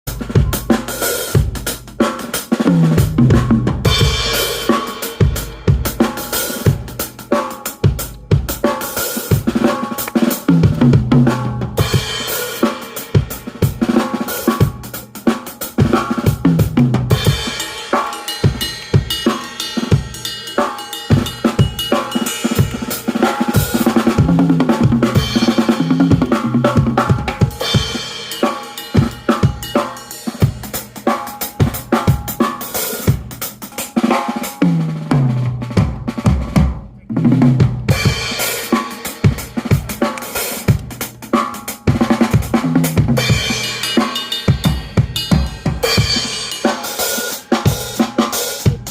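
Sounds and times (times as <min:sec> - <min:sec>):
drum kit playing a groove: 0:00.0 - 0:48.9.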